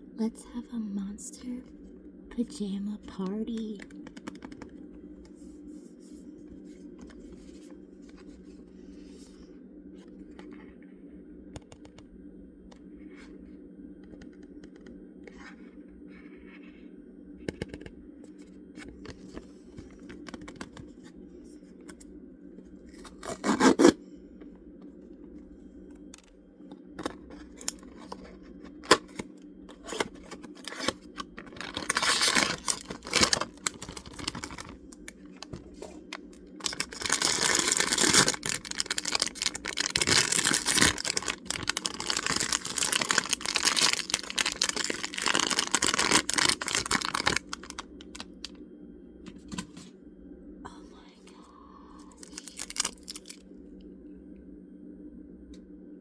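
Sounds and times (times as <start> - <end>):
steady low hum: 0.0 - 56.0
packaging scratches and clicks: 3.6 - 4.7, 23.0 - 24.0, 27.0 - 48.5, 52.2 - 53.4
plastic wrapping tearing: 29.8 - 35.6, 36.4 - 48.4, 52.2 - 53.4.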